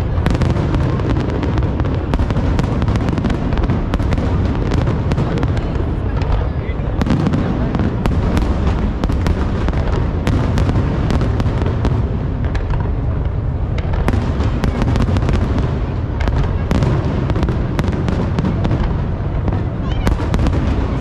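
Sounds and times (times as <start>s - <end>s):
fireworks booming and cracking: 0.0s - 21.0s.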